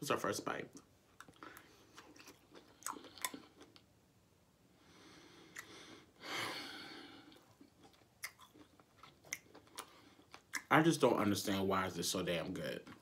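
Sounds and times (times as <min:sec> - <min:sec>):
close chewing of meat: 0:01.2 - 0:03.8, 0:07.3 - 0:10.7
wet mouth clicks: 0:05.5 - 0:05.7, 0:07.7 - 0:10.7.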